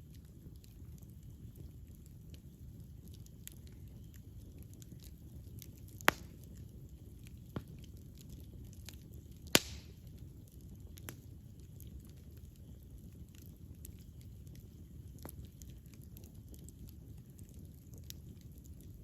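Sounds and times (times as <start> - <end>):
wood fire rumbling and crackling: 0.0 - 19.0
loud sharp pops of fire: 4.2 - 6.7, 7.3 - 11.3.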